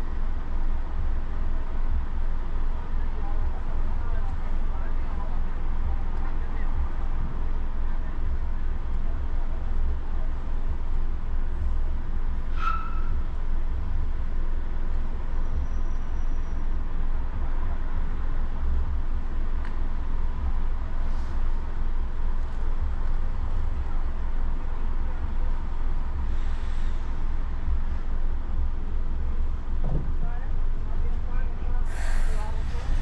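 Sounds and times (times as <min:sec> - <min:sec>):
car engine and road rumble: 0:00.0 - 0:33.0
tyres hissing on road: 0:20.6 - 0:23.6, 0:25.6 - 0:28.9, 0:31.5 - 0:33.0.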